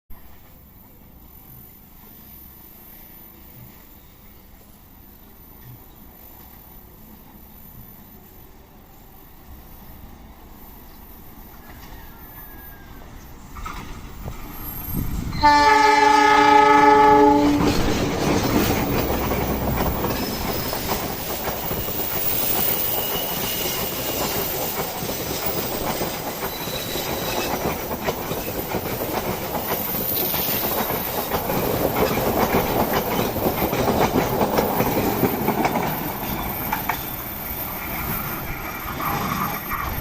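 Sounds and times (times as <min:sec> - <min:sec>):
passenger train rumbling past: 0:00.1 - 0:40.0
locomotive horn blast: 0:15.4 - 0:17.8
wheels clattering over rails: 0:17.4 - 0:40.0
thin wheel squeals: 0:19.9 - 0:28.7, 0:29.6 - 0:31.2, 0:34.2 - 0:40.0.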